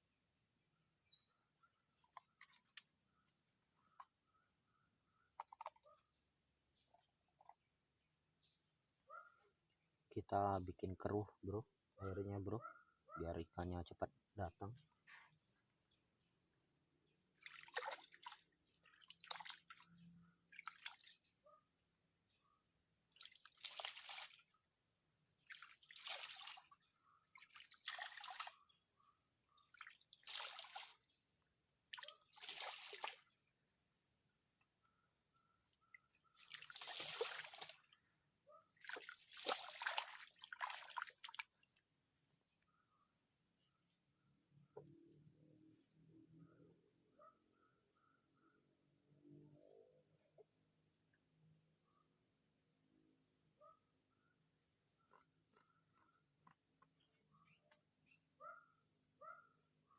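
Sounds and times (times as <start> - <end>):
crickets chirring: 0.0 - 59.9
river water splashing: 17.4 - 18.4, 19.0 - 19.9, 20.6 - 21.2, 23.2 - 24.4, 25.5 - 26.8, 27.4 - 28.6, 29.8 - 31.0, 31.9 - 33.3, 36.4 - 37.9, 38.8 - 41.5.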